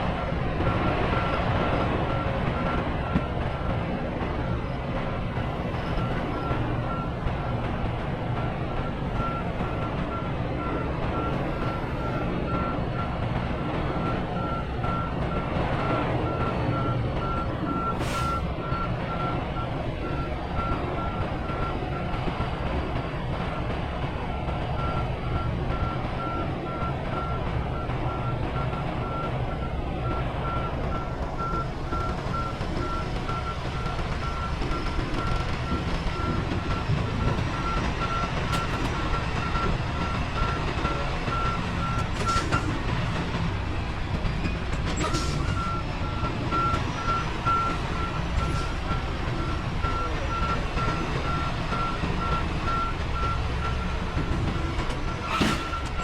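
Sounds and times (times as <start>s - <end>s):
diesel engine running: 0.0s - 56.0s
reversing alarm beeping: 24.3s - 42.7s, 45.0s - 54.4s, 55.0s - 56.0s.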